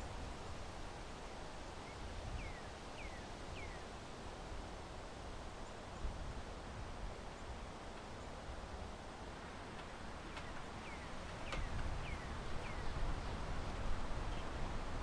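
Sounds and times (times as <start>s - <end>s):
wind and rustling: 0.0s - 15.0s.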